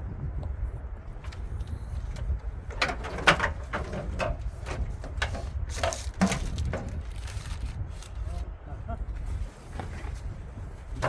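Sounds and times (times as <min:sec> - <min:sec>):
wind rumble on microphone: 0:00.0 - 0:11.0
irregular knocks and clatters: 0:02.2 - 0:07.0.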